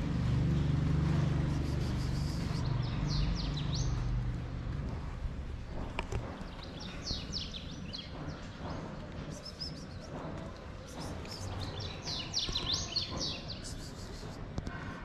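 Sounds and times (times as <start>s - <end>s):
small birds chirping: 1.4s - 4.2s, 5.8s - 14.4s.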